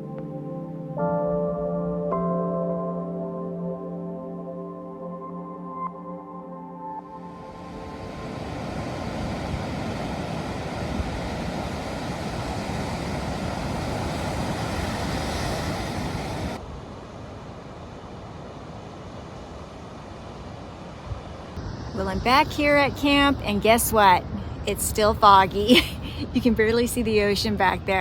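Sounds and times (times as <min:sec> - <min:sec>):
outdoor background noise: 0:07.6 - 0:28.0.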